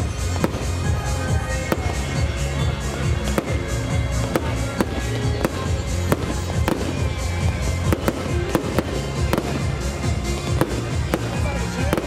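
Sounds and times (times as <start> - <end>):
music playing: 0.0 - 12.0.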